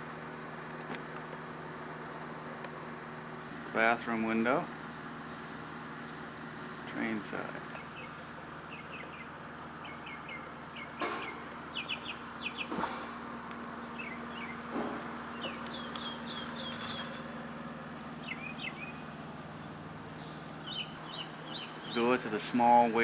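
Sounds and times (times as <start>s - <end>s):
steady low hum: 0.0s - 23.0s
small birds chirping: 5.3s - 6.0s, 6.8s - 23.0s.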